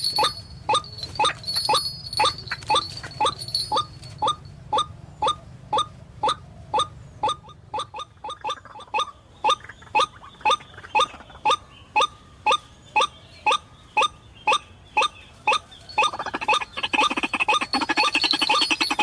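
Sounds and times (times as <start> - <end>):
waterhen calls: 0.0 - 19.0.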